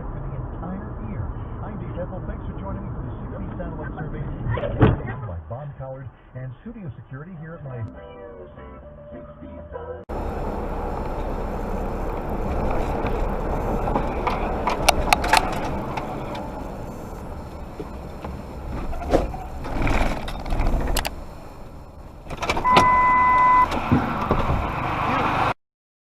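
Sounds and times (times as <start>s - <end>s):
car road and engine noise: 0.0s - 7.9s, 8.5s - 25.6s
steady beep: 22.6s - 23.7s.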